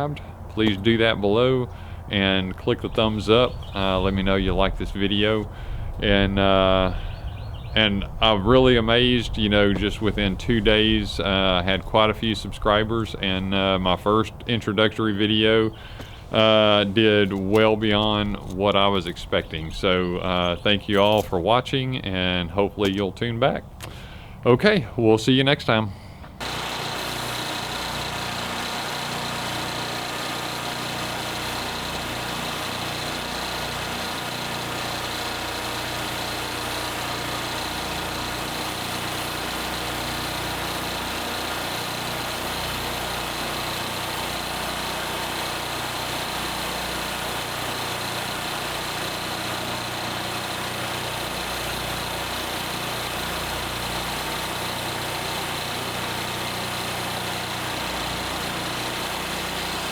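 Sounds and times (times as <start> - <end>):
engine idling: 26.4 - 59.9.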